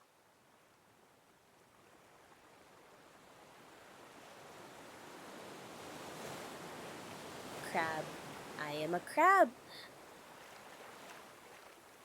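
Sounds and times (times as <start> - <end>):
ocean waves: 1.7 - 12.0.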